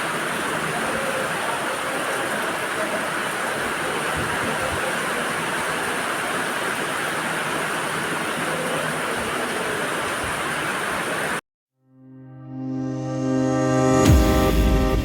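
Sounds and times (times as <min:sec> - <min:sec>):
heavy rain falling: 0:00.0 - 0:11.4
music with low held tones: 0:12.0 - 0:15.0.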